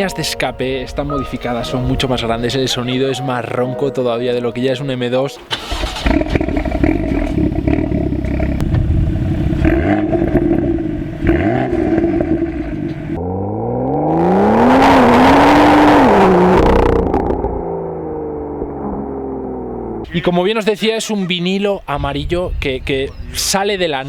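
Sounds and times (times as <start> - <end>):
car engine revving: 5.5 - 20.1.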